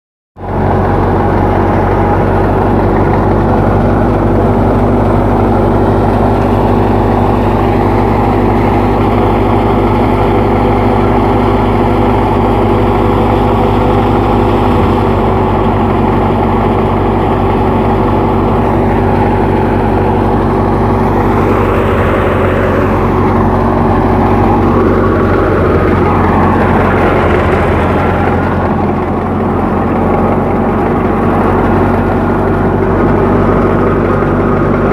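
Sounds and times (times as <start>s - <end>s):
tractor diesel engine running: 0.4s - 34.9s
higher wavering tones: 6.1s - 17.9s.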